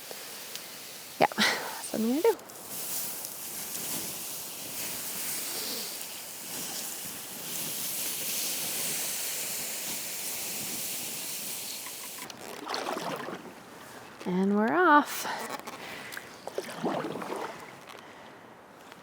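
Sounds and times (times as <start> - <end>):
steam hissing on wet embers: 0.0 - 12.3.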